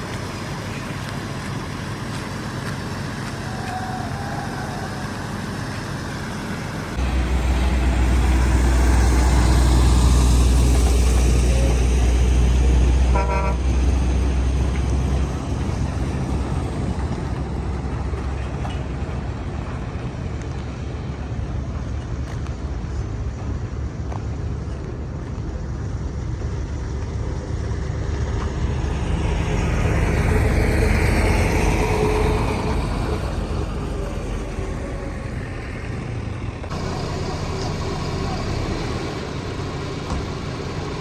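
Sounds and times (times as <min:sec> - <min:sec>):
heavy engine rumbling: 0:00.0 - 0:41.0
traffic rush: 0:00.0 - 0:41.0
vehicle horn toot: 0:13.1 - 0:13.7.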